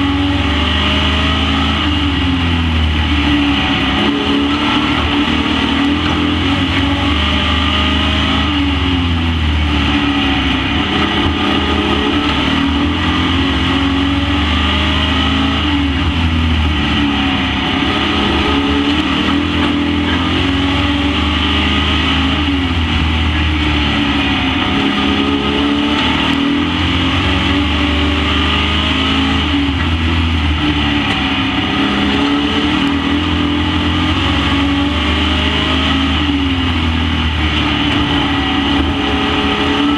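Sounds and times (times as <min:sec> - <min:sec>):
race truck engines revving: 0:00.0 - 0:39.9.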